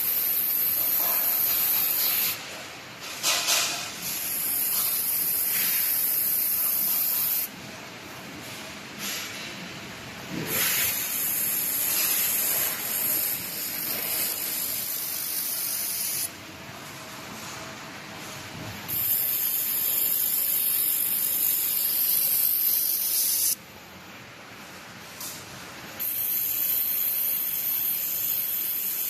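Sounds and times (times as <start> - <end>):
laser welding hiss: 0.0 - 2.4, 3.2 - 7.5, 10.3 - 16.3, 18.9 - 23.6, 26.0 - 29.0.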